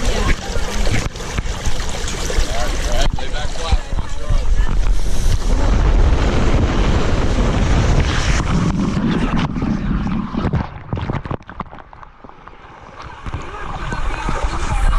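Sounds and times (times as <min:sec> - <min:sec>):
wind buffeting microphone: 0:00.1 - 0:11.7.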